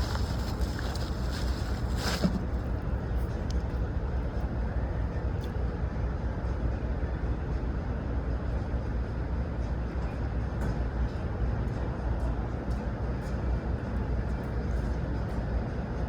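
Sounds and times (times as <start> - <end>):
vehicle engine rumble: 0.0 - 5.4
outdoor background noise: 0.0 - 16.0.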